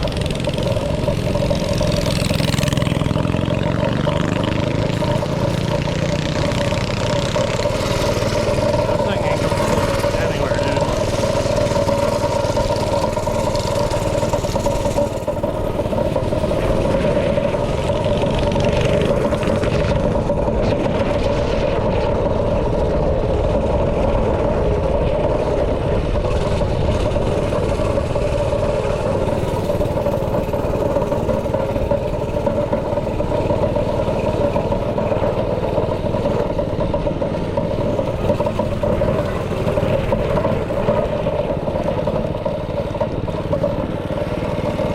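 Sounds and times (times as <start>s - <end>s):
small engine running steadily: 0.0s - 44.9s.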